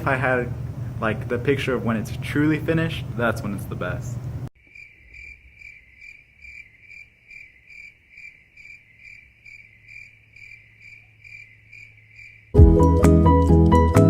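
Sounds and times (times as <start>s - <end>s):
low steady hum: 0.0s - 4.5s
cricket chirping: 4.6s - 12.6s.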